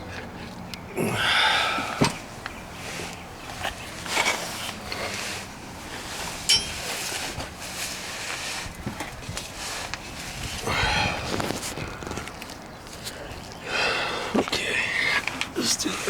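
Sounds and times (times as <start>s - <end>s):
scraping rustle: 1.9s - 13.6s
metallic clink: 6.5s - 6.9s.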